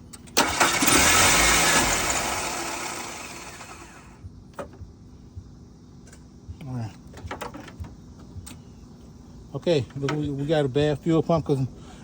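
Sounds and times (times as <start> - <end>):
car engine cranking and starting: 0.0 - 4.8.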